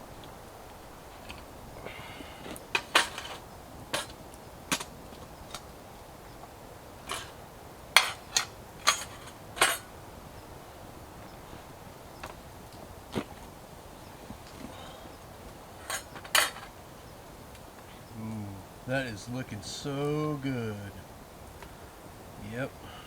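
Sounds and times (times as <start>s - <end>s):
metal cookware clanking: 8.0s - 9.9s, 15.8s - 16.7s.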